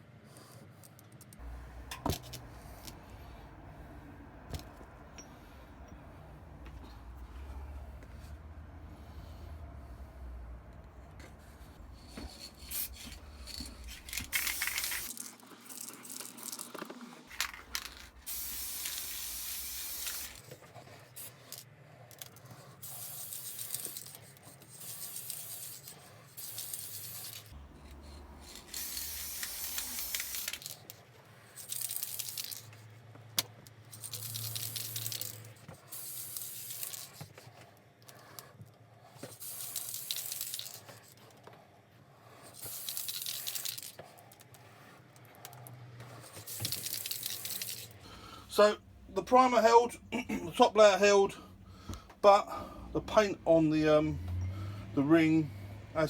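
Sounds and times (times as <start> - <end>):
spray can rattling: 12.2 - 20.5, 22.8 - 27.6, 28.4 - 30.8, 31.6 - 32.7, 34.0 - 37.2, 39.4 - 40.8, 42.6 - 44.0, 46.4 - 48.0
spray can hissing: 12.7 - 15.2, 18.2 - 20.4, 28.6 - 30.7.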